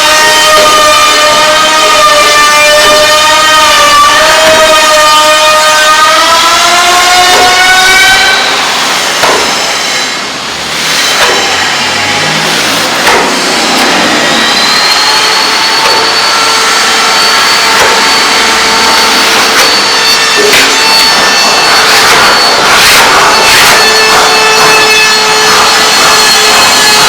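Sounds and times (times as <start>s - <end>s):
power tool motor whine: 6.3s - 27.0s.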